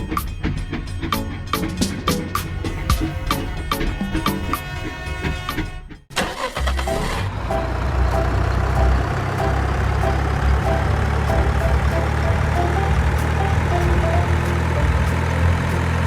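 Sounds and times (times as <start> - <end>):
background music: 0.0 - 5.9, 6.6 - 16.0
small engine running: 6.8 - 16.0.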